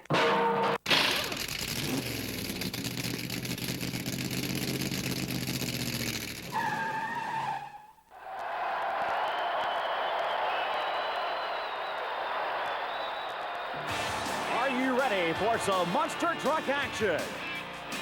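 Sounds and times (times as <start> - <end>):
vehicle engine running: 1.2 - 6.5.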